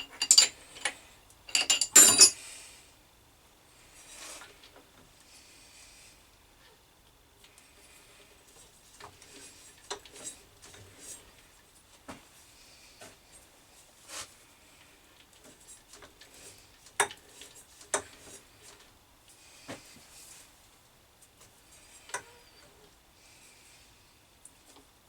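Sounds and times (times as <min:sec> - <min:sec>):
metal clicks and scrapes: 0:00.0 - 0:02.4.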